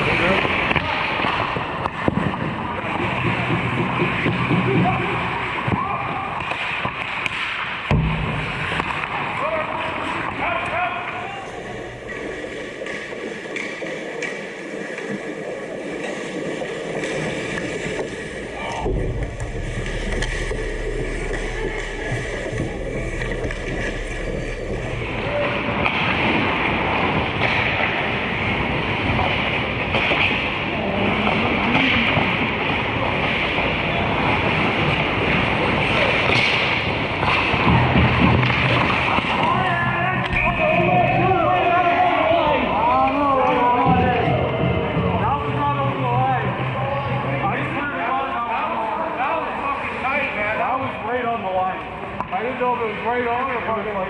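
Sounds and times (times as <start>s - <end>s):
hockey game noise: 0.0s - 54.0s.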